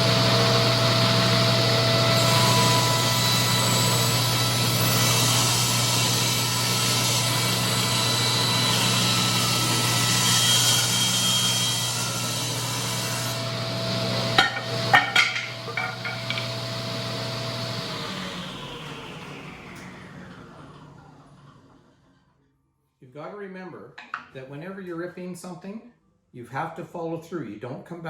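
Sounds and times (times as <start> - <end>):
sharp knocks: 14.4 - 16.5.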